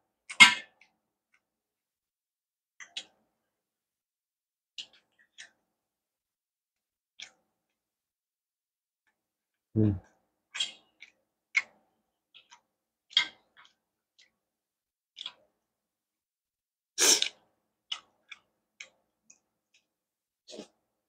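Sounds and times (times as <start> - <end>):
chewing and mouth clicks: 10.5 - 14.4, 15.2 - 15.6, 17.2 - 19.9.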